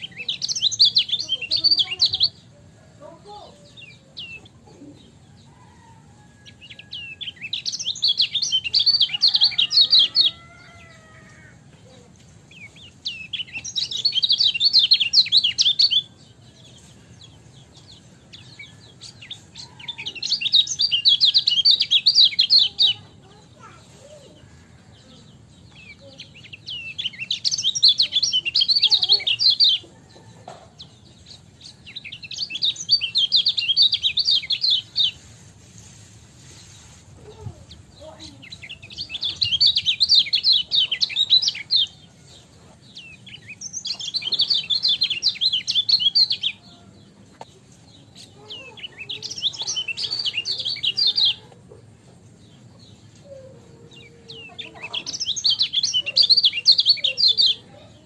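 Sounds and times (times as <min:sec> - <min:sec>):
bird twittering chirps: 0:00.0 - 0:02.5, 0:03.3 - 0:11.5, 0:12.4 - 0:23.0, 0:37.3 - 0:42.1, 0:42.9 - 0:51.5, 0:52.4 - 0:58.0.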